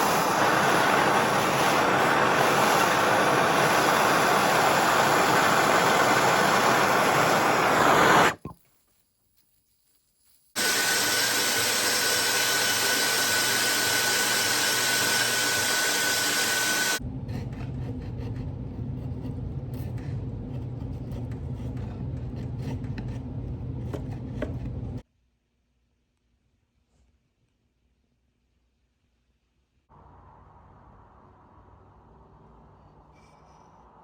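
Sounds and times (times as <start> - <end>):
power tool hissing whine: 0.0 - 8.4, 10.6 - 17.0.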